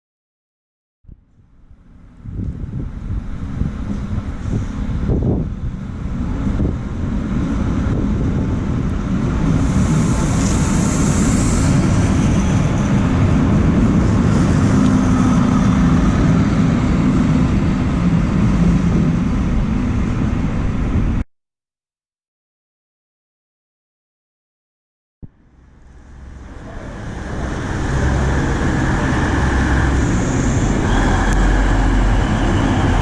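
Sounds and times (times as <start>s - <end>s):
train rumbling: 1.1s - 21.2s, 25.2s - 33.0s
burst of hiss: 9.6s - 12.0s.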